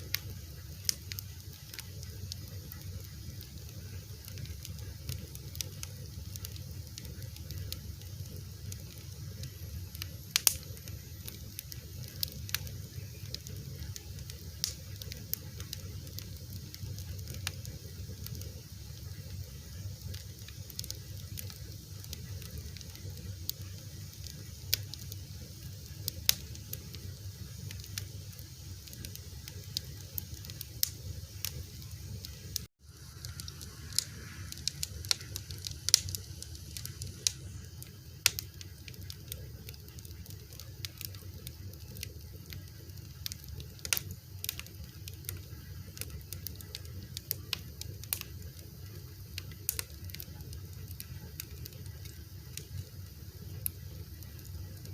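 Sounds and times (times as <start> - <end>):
fire crackling and popping: 0.0 - 54.9
steady low rumble: 23.4 - 38.5.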